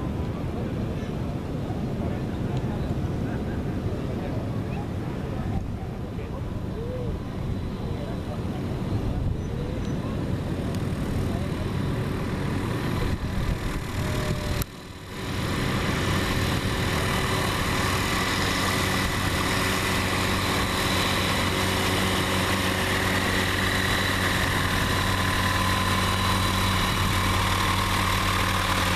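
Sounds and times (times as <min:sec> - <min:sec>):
engine humming with faint whine: 0:00.0 - 0:28.9.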